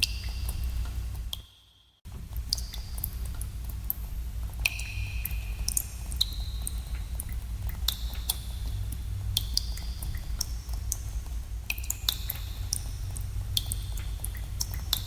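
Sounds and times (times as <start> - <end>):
steady low rumble: 2.1 - 15.0
water drops plinking in pools: 4.6 - 15.0.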